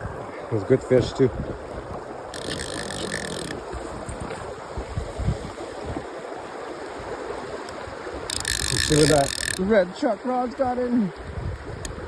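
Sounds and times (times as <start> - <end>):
fishing reel drag buzzing: 2.3 - 3.8, 8.2 - 9.7.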